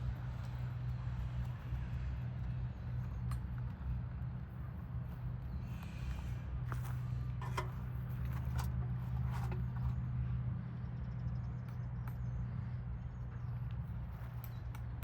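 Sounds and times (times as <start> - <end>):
low mechanical hum: 0.0 - 15.0
knocks and scrapes: 7.4 - 10.0.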